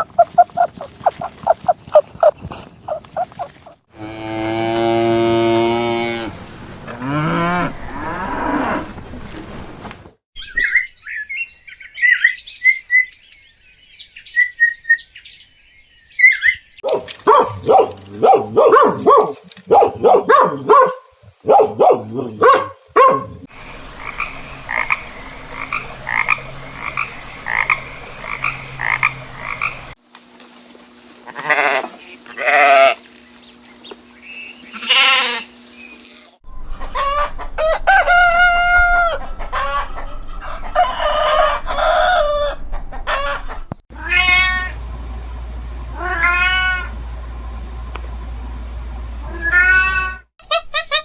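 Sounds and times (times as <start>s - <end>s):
chickens clucking: 0.0s - 3.8s, 23.5s - 30.0s, 36.6s - 43.8s
frog croaking: 23.5s - 30.0s
animal bleating: 31.3s - 33.0s, 34.7s - 35.5s.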